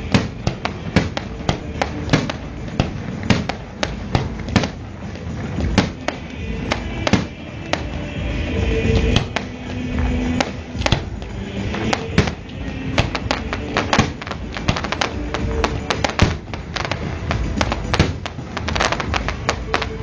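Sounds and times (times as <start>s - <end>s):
fireworks bangs: 0.0s - 20.0s
music playing: 0.0s - 20.0s.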